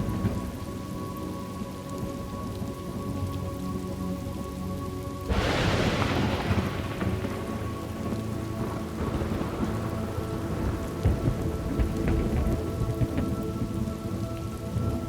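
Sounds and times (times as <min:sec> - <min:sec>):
steady rain: 0:00.0 - 0:15.0
thunderclap and rumbling: 0:05.3 - 0:15.0.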